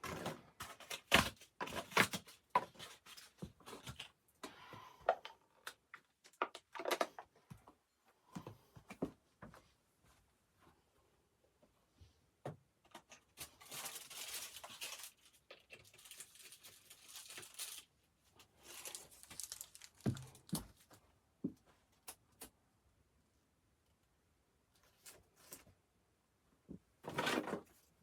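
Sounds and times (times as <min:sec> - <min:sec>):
crinkly rustling and tearing: 0:13.3 - 0:21.0.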